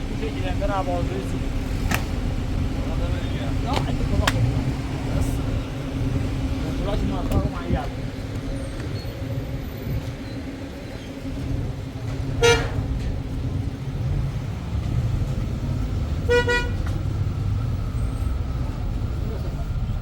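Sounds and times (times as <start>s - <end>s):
city traffic rumbling: 0.0s - 20.0s
car horn honks: 12.4s - 12.9s, 16.2s - 16.9s.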